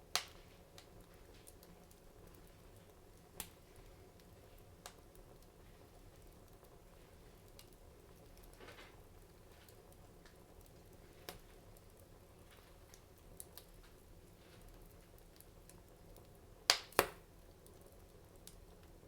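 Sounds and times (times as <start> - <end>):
wood fire crackling: 0.0 - 19.0
loud sharp fire pops: 16.7 - 17.2.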